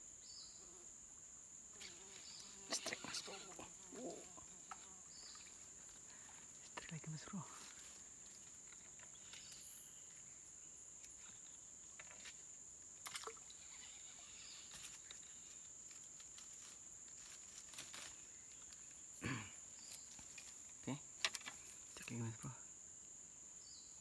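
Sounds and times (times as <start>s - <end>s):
insects droning: 0.0s - 24.0s
small clicks and knocks: 19.9s - 22.2s.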